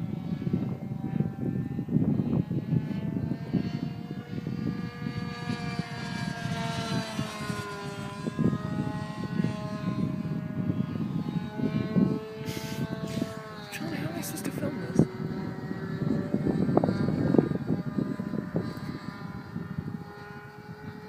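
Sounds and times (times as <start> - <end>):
model plane engine whine: 0.0 - 21.0
wind buffeting microphone: 0.0 - 21.0.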